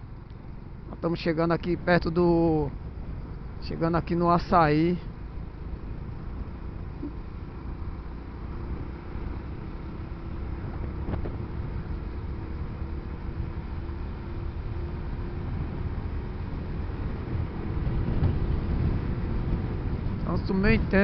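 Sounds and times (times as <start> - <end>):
motorcycle engine rumble: 0.0 - 21.0
wind noise on microphone: 10.6 - 11.5, 15.4 - 21.0.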